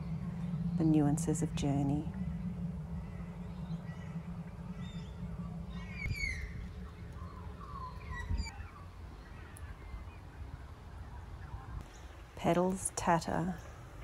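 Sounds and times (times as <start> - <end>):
steady low rumble: 0.0 - 14.0
birds chirping and calling: 2.2 - 12.2.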